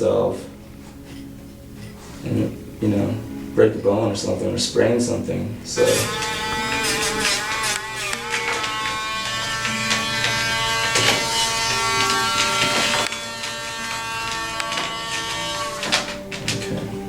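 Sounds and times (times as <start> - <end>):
electric clippers buzzing: 5.8 - 16.9.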